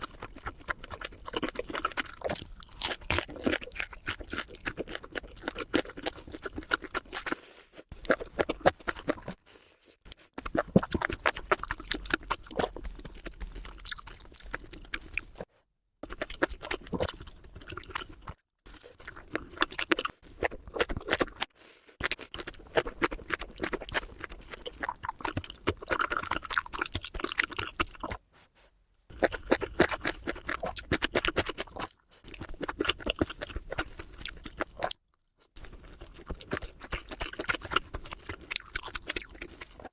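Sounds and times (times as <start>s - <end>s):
chewing: 0.0s - 28.2s, 29.1s - 39.9s
crisp crunching: 0.2s - 9.3s.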